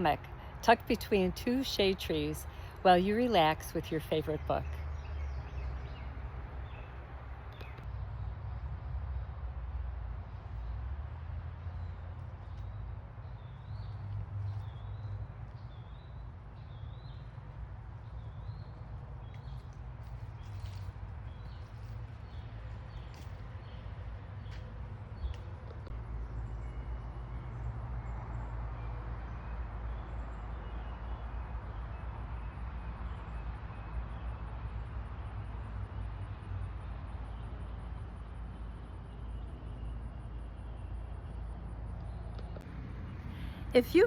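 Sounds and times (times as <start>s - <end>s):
low outdoor rumble: 0.0s - 31.4s.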